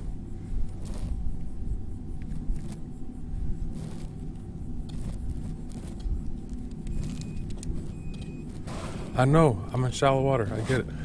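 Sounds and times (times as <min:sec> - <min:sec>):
high electronic beep: 0:06.9 - 0:08.6.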